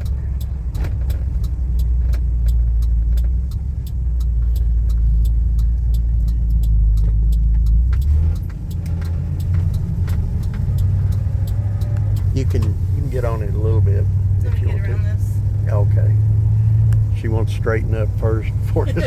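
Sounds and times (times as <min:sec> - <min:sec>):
fast light ticking: 0:00.0 - 0:12.9
pickup truck engine and road drone: 0:00.0 - 0:19.0.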